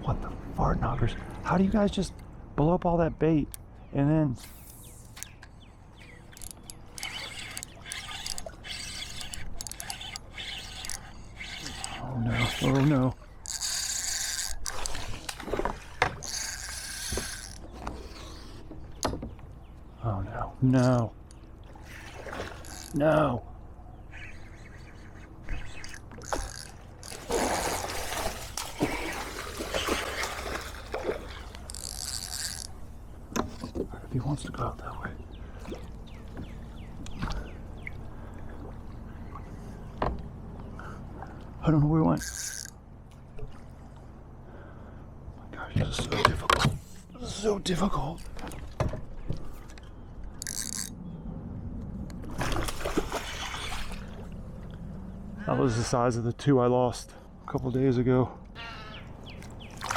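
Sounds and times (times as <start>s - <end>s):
water splashing and trickling: 4.5s - 44.6s, 47.0s - 51.1s, 52.1s - 55.4s, 59.0s - 59.9s
fishing reel cranking: 6.3s - 15.3s, 16.2s - 18.6s, 22.6s - 23.0s, 25.5s - 28.0s, 31.3s - 32.8s, 42.2s - 42.8s, 50.4s - 51.0s.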